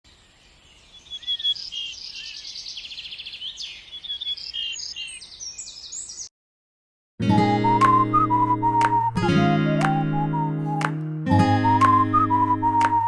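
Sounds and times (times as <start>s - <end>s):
small birds chirping and trilling: 0.1s - 6.3s.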